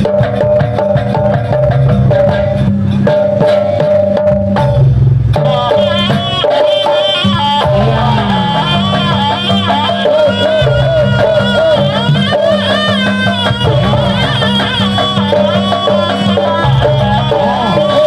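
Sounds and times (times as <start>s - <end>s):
ensemble percussion rhythm: 0.0s - 18.0s
wavering melody: 5.3s - 18.0s.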